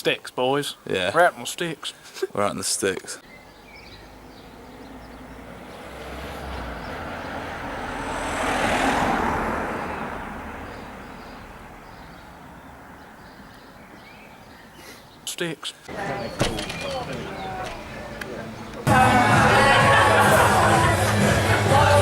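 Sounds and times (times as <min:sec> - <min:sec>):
car passing by: 0:04.1 - 0:13.0.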